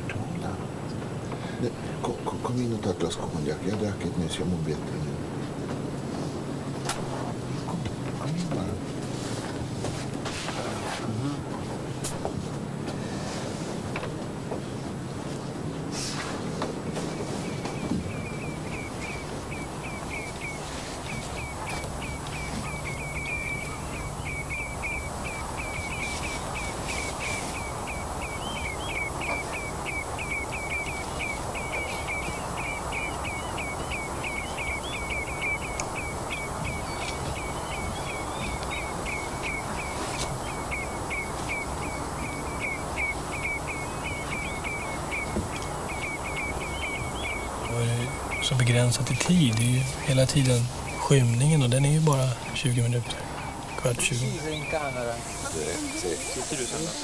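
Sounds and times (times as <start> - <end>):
wind hiss: 0.0 - 57.0
bird chirping: 14.0 - 57.0.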